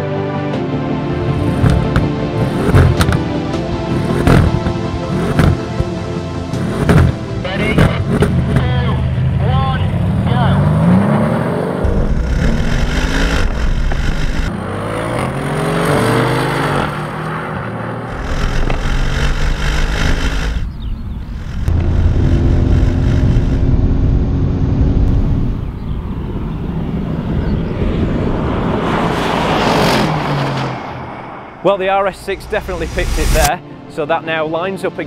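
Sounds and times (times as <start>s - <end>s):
car engines accelerating hard: 1.1s - 33.5s.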